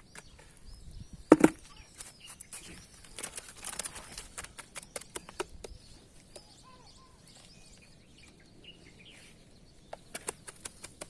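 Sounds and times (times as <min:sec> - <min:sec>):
faint bird chirps: 0:00.0 - 0:10.9
outdoor background noise: 0:00.0 - 0:11.0
sharp clicks: 0:10.1 - 0:11.0.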